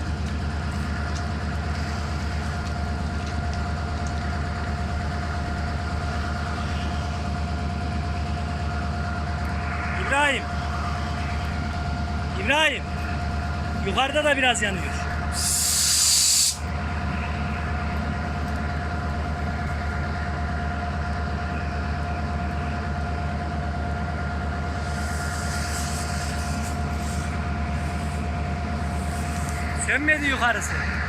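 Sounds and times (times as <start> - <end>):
steady whine: 0.0 - 31.0
train idling hum: 0.0 - 31.0
air hiss: 15.3 - 16.7, 24.8 - 28.2.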